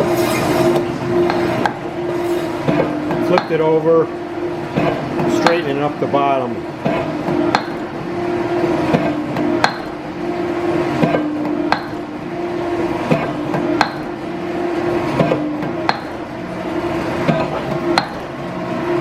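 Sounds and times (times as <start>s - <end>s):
steady hum: 0.0s - 19.0s
hammer striking steel plate: 1.2s - 1.8s, 2.7s - 3.7s, 7.5s - 7.9s, 9.6s - 10.0s, 11.1s - 12.1s, 13.2s - 14.2s, 15.3s - 16.2s, 17.3s - 18.3s.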